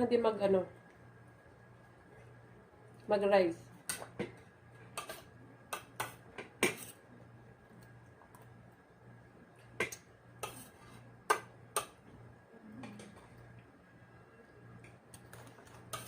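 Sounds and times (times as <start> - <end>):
faint low hum: 0.0 - 16.0
cutlery clicking on dishes: 5.0 - 6.9, 11.3 - 12.0.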